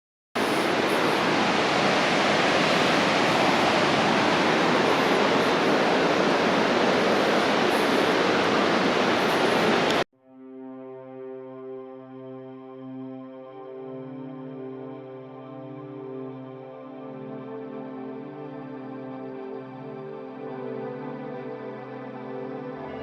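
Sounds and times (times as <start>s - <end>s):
waterfall rushing: 0.4s - 10.0s
quiet sustained music tones: 0.4s - 23.0s.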